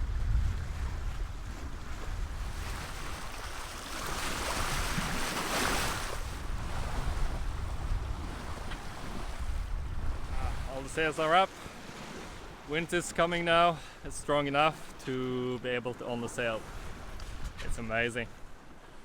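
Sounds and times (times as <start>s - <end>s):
wind buffeting microphone: 0.0s - 12.7s, 16.6s - 18.6s
sea water rushing along hull: 0.0s - 19.0s.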